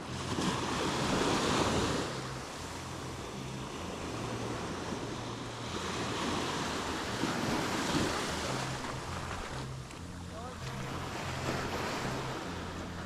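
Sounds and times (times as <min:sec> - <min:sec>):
surf breaking on a beach: 0:00.0 - 0:13.0.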